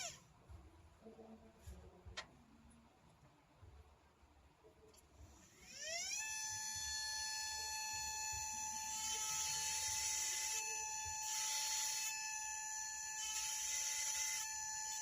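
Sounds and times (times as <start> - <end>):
rotary tool whine: 0.0 - 0.3, 5.2 - 15.0.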